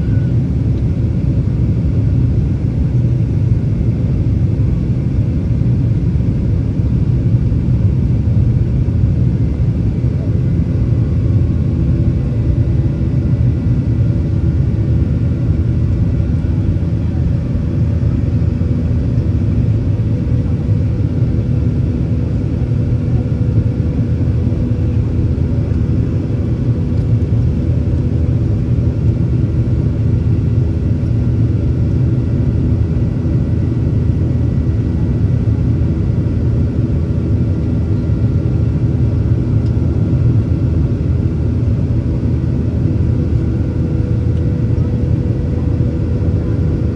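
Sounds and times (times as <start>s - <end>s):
faint whining tones: 0.0s - 0.4s
deep rumble of jet engines: 0.0s - 46.9s.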